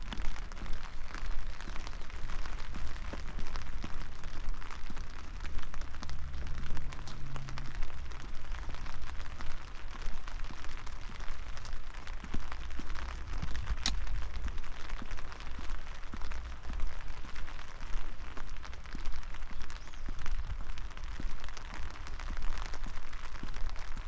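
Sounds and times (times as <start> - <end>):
rain falling: 0.0 - 24.0
low rumble: 2.4 - 18.9.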